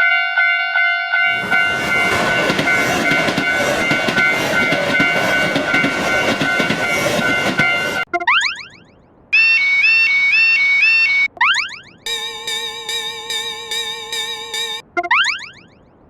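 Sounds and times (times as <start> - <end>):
crossing alarm tones: 0.0 - 8.8, 9.4 - 15.7
train wheels clickety-clack: 1.3 - 8.1.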